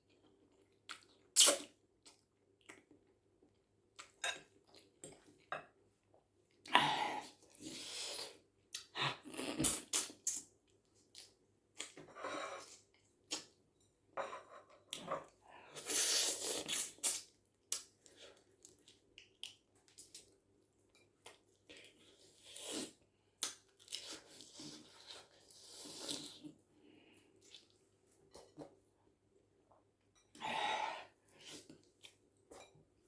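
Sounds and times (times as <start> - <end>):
chewing and eating: 14.6 - 22.8.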